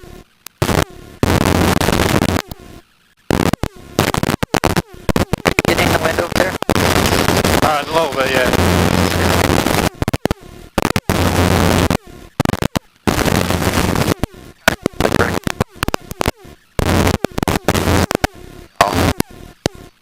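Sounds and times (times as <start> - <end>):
wind noise on headset microphone: 3.3 - 18.2.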